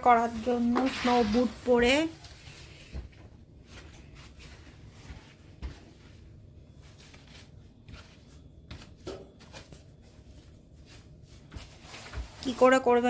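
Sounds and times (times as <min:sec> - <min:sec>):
soft knocks and rustles: 0:02.2 - 0:06.3.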